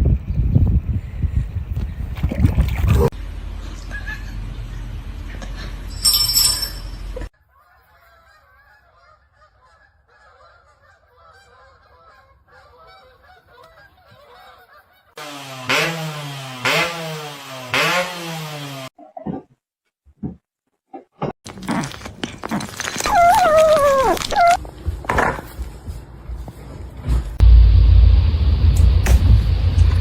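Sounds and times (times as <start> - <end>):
animal calling loudly: 22.9 - 24.6
steady rushing noise: 27.4 - 30.0.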